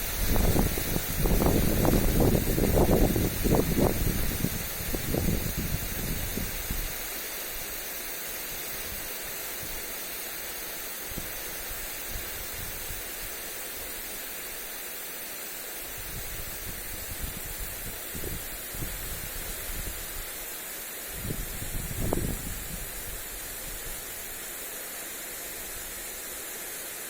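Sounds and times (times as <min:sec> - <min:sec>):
wind gusts on microphone: 0:00.0 - 0:07.0, 0:16.0 - 0:20.3, 0:21.1 - 0:24.2
sprinkler spraying water: 0:00.0 - 0:27.0.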